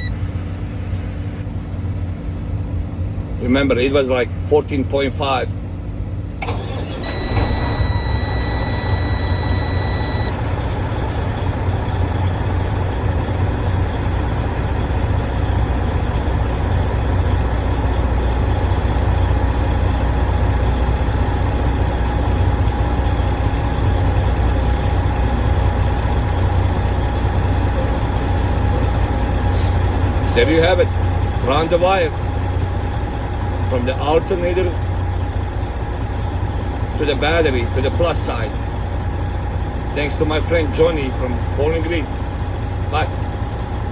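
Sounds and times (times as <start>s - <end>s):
diesel truck engine idling: 0.0s - 43.9s
high-pitched beep: 7.0s - 10.4s.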